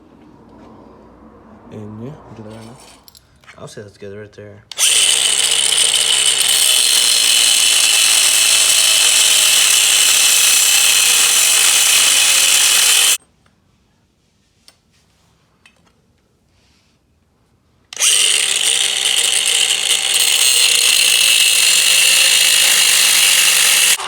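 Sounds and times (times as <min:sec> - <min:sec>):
power tool cutting steel: 0:04.7 - 0:13.2, 0:18.0 - 0:24.0.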